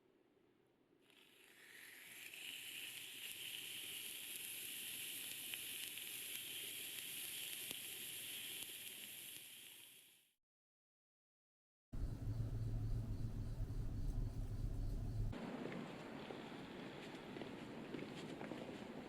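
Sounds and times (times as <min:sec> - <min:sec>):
food sizzling: 0:01.1 - 0:10.3.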